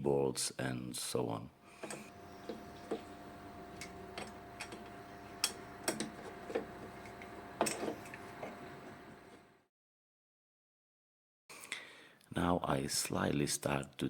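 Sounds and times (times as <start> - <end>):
faint steady hum: 1.4 - 9.6.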